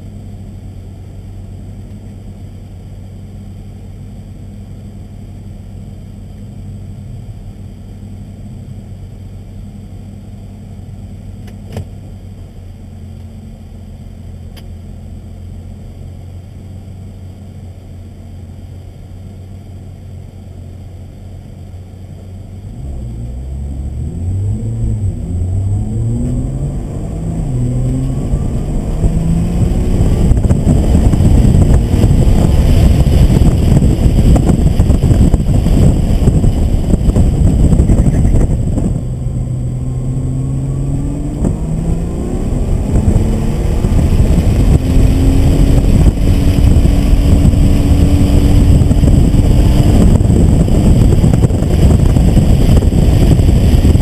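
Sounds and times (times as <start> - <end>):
car engine idling: 0.0 - 22.7, 23.3 - 41.8
car accelerating and shifting gears: 21.4 - 54.0.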